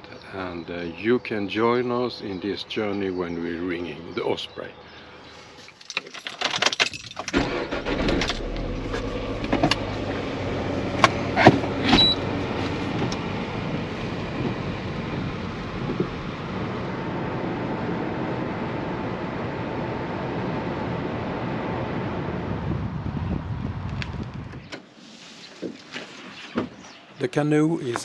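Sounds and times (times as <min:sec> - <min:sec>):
clicks and rattles: 0:05.8 - 0:07.5
car engine starting and running: 0:06.9 - 0:22.4.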